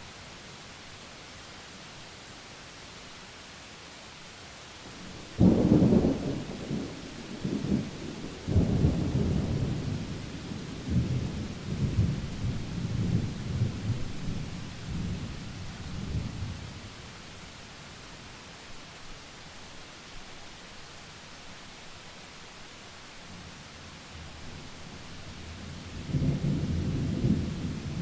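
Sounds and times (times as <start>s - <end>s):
rain hiss: 0.0s - 28.0s
thunder crack and rumble: 26.0s - 28.0s.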